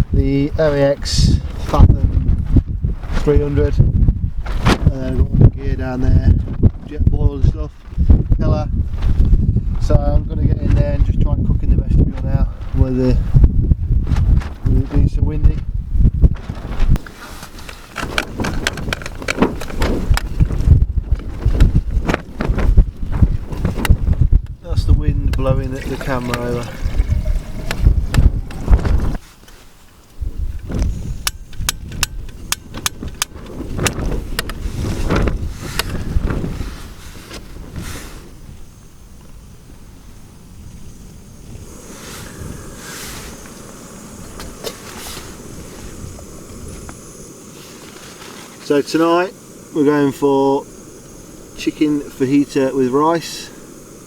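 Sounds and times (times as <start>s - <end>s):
wind buffeting microphone: 0.0s - 54.0s
camera rustling and knocking: 15.6s - 24.6s, 25.2s - 30.0s, 30.6s - 37.8s.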